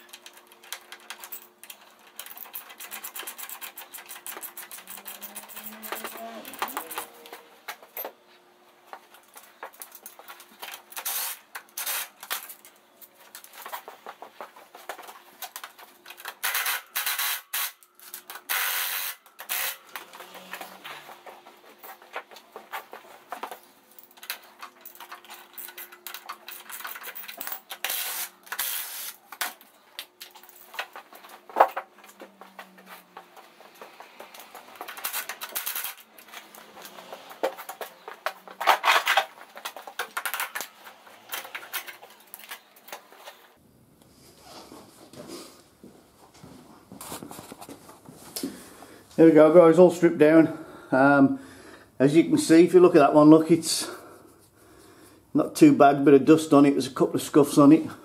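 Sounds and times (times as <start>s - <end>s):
tools and bolts clattering: 0.0s - 8.2s, 8.9s - 43.6s
impact driver bursts: 16.4s - 20.1s.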